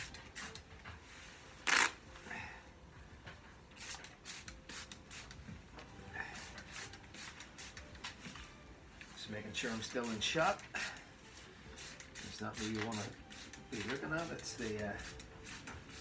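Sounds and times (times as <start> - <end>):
spray bottle squirts: 0.0 - 0.6, 1.6 - 2.0, 3.8 - 5.4, 6.4 - 8.3, 11.8 - 16.0.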